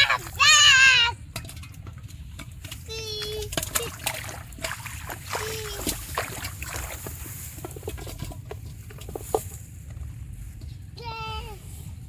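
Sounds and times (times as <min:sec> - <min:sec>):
shallow water splashing: 0:00.0 - 0:09.2.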